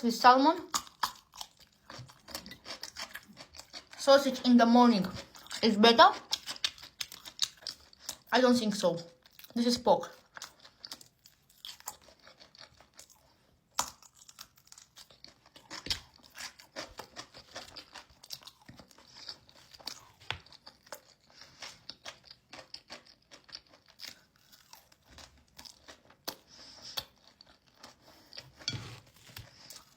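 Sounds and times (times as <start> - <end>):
person chewing and crunching food: 0.5 - 8.4, 9.0 - 29.9.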